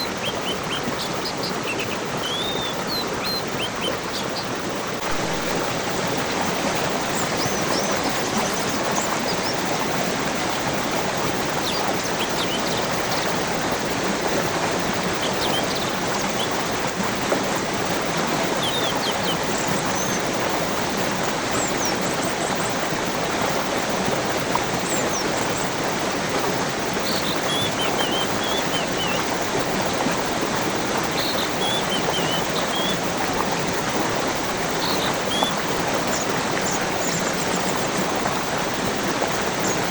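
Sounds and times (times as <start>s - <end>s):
small birds chirping: 0.0s - 16.8s, 18.2s - 20.5s, 26.9s - 30.1s, 30.8s - 33.6s, 34.2s - 37.8s
stream water running: 0.0s - 39.9s.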